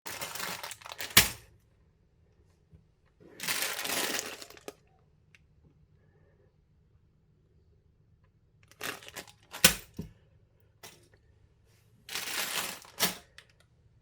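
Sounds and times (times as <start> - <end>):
plastic bag crinkling: 0.1 - 1.4, 3.3 - 4.9, 8.7 - 9.7, 12.1 - 13.4.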